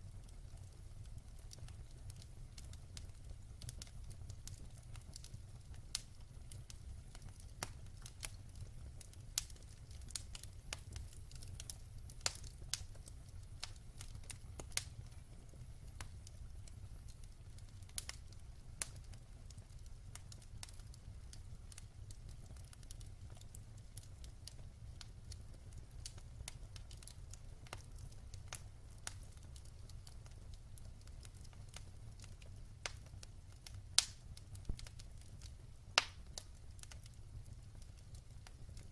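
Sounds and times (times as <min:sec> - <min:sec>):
low rumble of flames: 0:00.0 - 0:38.9
wood fire crackling and popping: 0:00.0 - 0:38.9.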